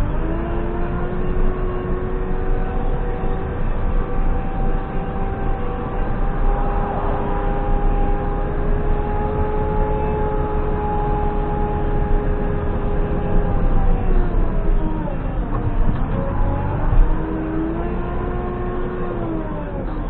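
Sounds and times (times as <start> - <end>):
engine whine: 0.0 - 20.0
diesel engine running: 12.2 - 20.0.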